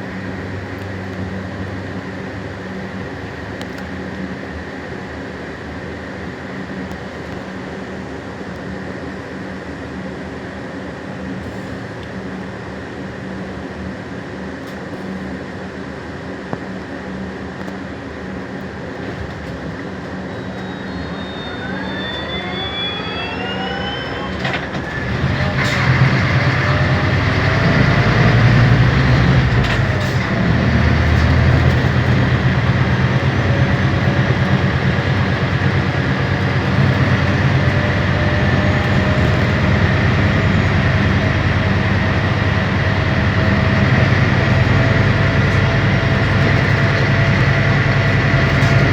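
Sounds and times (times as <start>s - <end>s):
electric drive whine: 17.6s - 48.9s
low drone: 19.6s - 48.9s
steady high tone: 20.2s - 48.9s.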